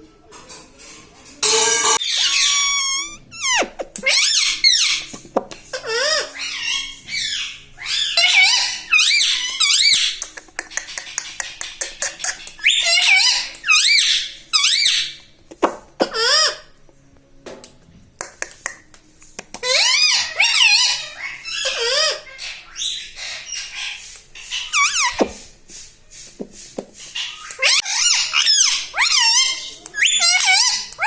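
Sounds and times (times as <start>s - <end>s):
parakeet squawking: 1.4s - 5.1s, 5.8s - 10.2s, 12.0s - 15.2s, 19.6s - 25.4s, 27.2s - 31.0s.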